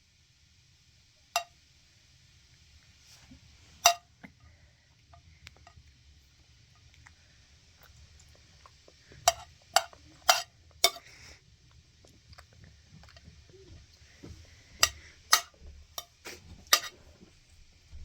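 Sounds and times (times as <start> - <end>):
utensils clinking against dishes: 9.3 - 11.2, 14.8 - 17.1.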